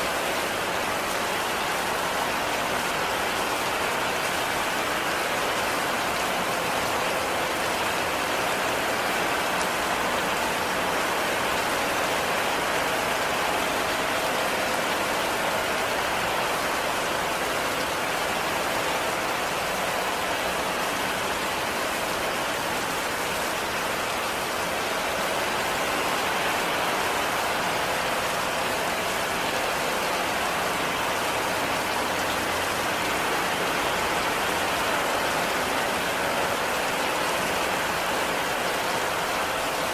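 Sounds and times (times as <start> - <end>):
heavy rain on a cabin: 0.0 - 39.9.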